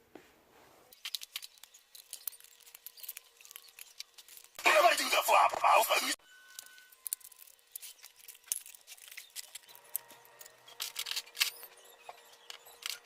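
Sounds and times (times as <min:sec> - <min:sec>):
plastic bricks clicking and rattling: 0:01.0 - 0:04.6, 0:06.5 - 0:13.0.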